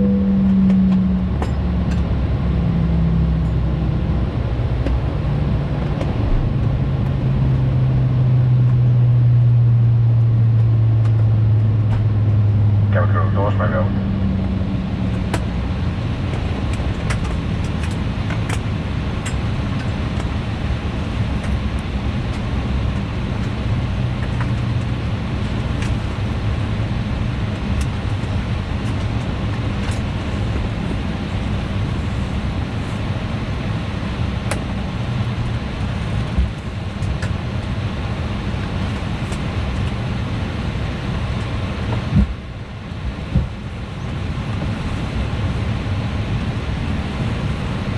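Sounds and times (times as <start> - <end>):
aircraft cabin air rush: 11.1 - 47.9.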